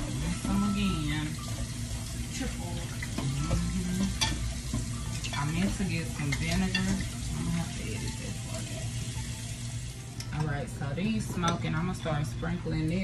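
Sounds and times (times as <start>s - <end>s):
meat sizzling in hot oil: 0.0s - 10.1s.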